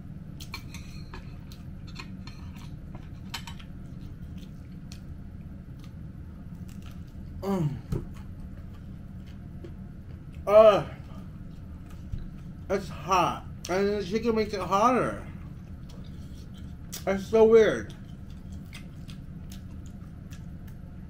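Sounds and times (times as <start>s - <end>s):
low steady hum: 0.0s - 21.0s
person chewing food: 0.3s - 12.7s, 15.4s - 17.1s, 17.9s - 21.0s.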